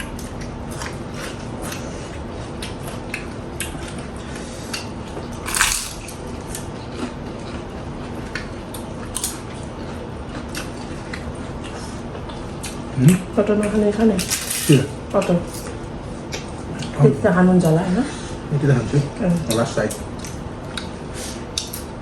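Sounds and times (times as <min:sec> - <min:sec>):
wet chewing: 0:00.1 - 0:17.0.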